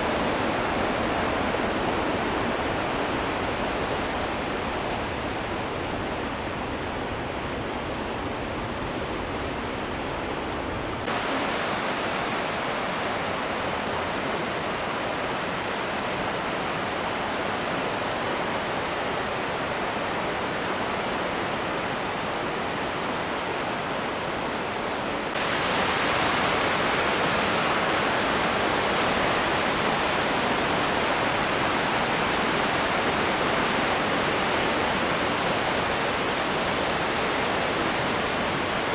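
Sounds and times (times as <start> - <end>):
waterfall rushing: 10.7 - 20.8, 24.7 - 38.9.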